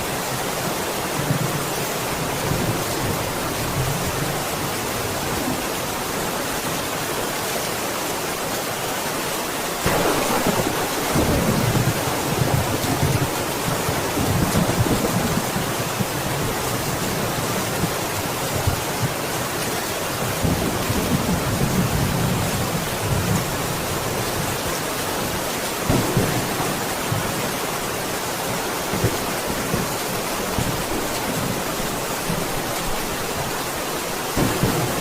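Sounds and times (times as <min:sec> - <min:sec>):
heavy rain: 0:00.0 - 0:35.0
thunder rumbling: 0:09.8 - 0:19.2, 0:25.9 - 0:32.6, 0:34.4 - 0:35.0.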